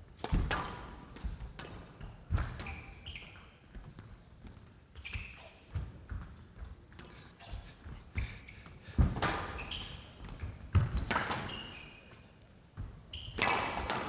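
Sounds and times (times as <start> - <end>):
shoes squeaking on court floor: 2.5 - 4.1, 5.0 - 14.0.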